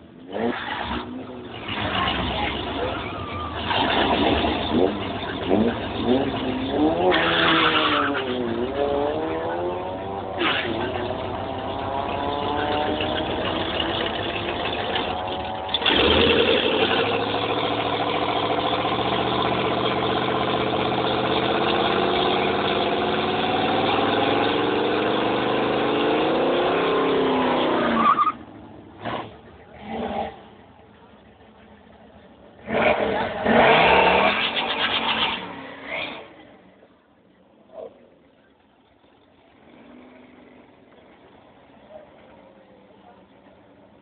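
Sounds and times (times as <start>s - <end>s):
car engine revving: 0.3s - 28.3s, 32.5s - 36.4s.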